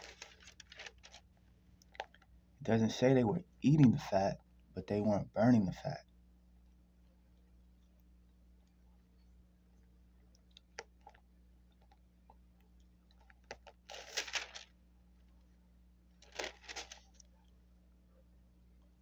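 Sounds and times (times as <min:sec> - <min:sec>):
paper pages rustling: 0:00.0 - 0:02.2, 0:13.2 - 0:14.8, 0:16.2 - 0:17.3.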